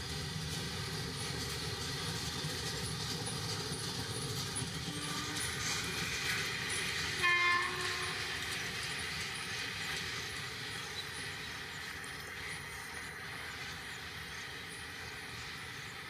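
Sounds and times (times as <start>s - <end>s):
freight train rumbling: 0.0s - 16.0s
locomotive horn blast: 4.9s - 5.6s, 7.2s - 8.4s.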